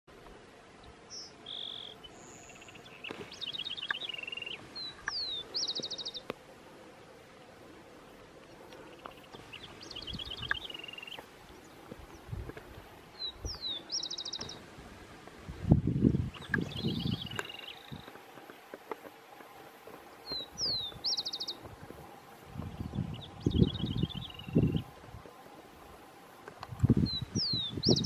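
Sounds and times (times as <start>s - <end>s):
songbird singing trills and whistles: 1.1s - 6.2s, 13.2s - 14.6s, 16.3s - 18.1s, 20.3s - 21.6s, 22.9s - 24.9s, 27.0s - 28.0s.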